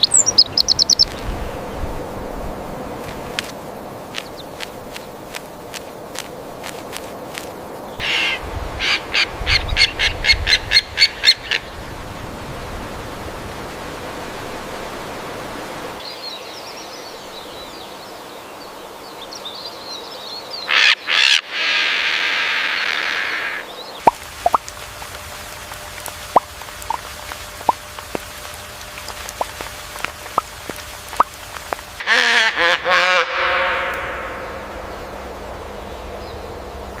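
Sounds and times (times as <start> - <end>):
birds calling: 0.0 - 1.6, 4.1 - 11.8, 19.3 - 37.0
long harsh bird call: 8.0 - 10.1.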